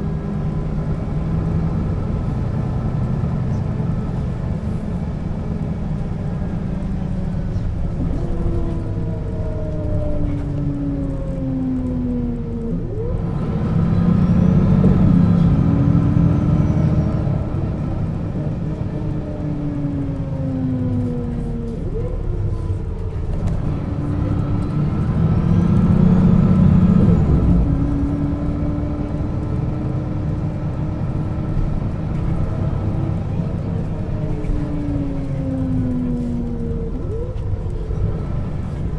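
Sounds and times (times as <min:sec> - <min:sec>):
bus engine: 0:00.0 - 0:38.9
whining drivetrain: 0:00.0 - 0:38.9.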